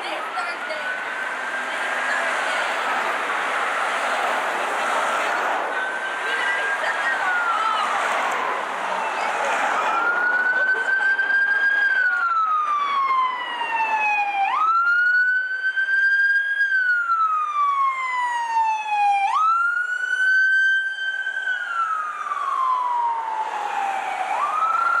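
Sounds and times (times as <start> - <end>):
siren wailing: 0.0 - 25.0.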